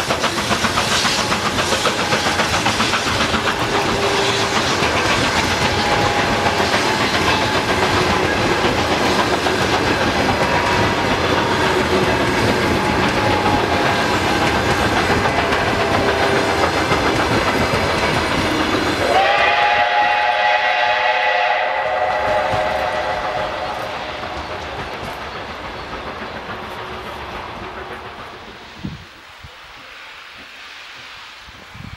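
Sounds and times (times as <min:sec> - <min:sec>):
steam train rumble and rail clatter: 0:00.0 - 0:31.9
multi-tone train whistle: 0:00.9 - 0:17.7, 0:18.4 - 0:25.1.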